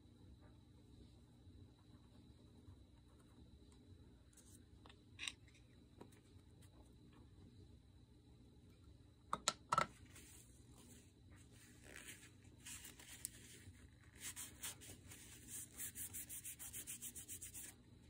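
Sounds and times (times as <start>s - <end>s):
rubbing strokes on paper: 10.2s - 17.8s.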